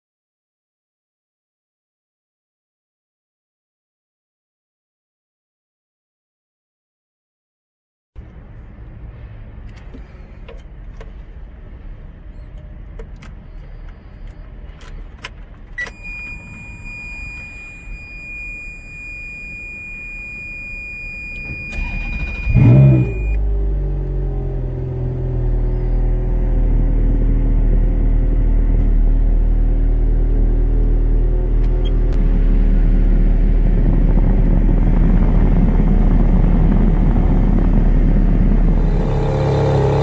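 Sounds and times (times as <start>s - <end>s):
car engine revving and idling: 20.1s - 40.0s
starter motor cranking: 21.4s - 23.1s, 38.7s - 40.0s.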